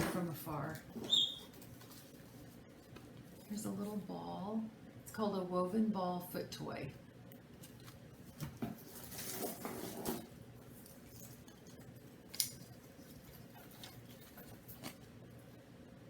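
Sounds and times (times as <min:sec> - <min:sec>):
packaging rustling: 0:07.6 - 0:15.1.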